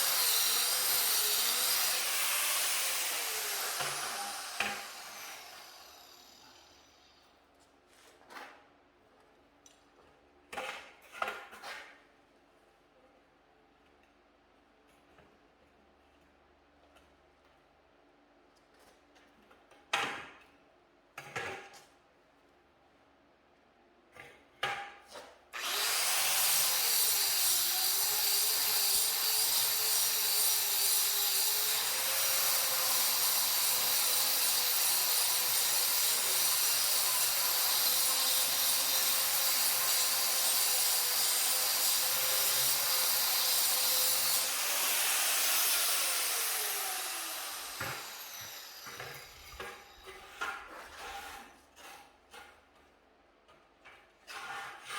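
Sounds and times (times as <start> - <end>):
power cutting tool running: 0.0 - 6.8, 25.6 - 50.0
tool winding down whine: 25.6 - 27.8, 44.4 - 50.0.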